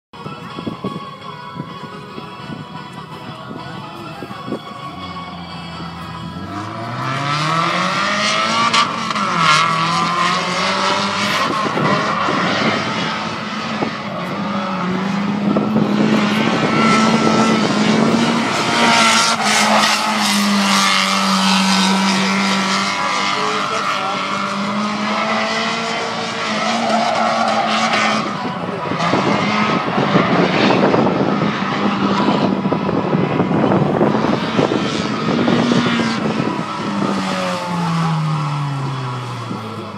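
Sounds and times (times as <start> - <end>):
car engine revving: 4.8 - 39.9.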